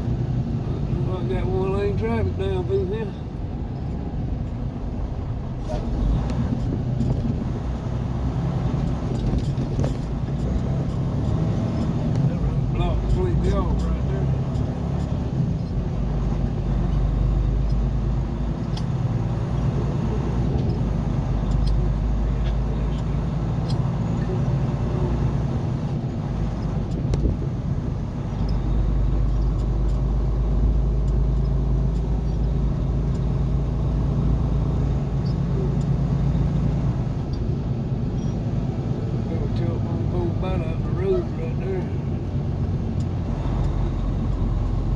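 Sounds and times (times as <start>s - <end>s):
car engine and road noise: 0.0s - 44.9s.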